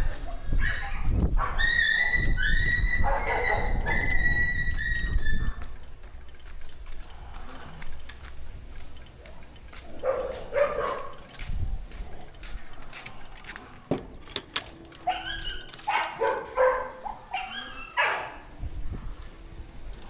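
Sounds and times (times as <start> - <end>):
dog whimpering: 0.0 - 5.8, 15.0 - 18.6.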